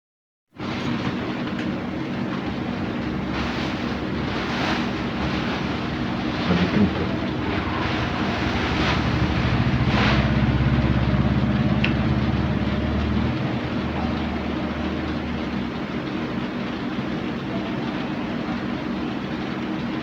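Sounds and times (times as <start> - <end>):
engine running steadily: 0.6 - 20.0.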